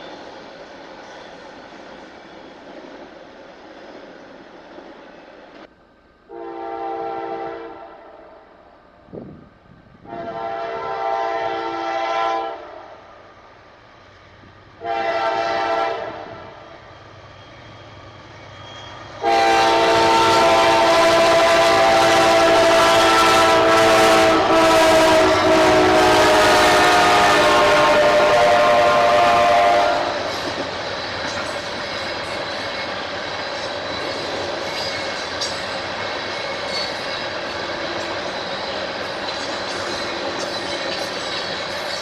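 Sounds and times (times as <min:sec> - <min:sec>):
train rolling: 0:00.0 - 0:06.3, 0:08.4 - 0:42.0
locomotive horn blasts: 0:06.3 - 0:08.2, 0:10.0 - 0:12.8, 0:14.8 - 0:16.5, 0:19.2 - 0:30.3.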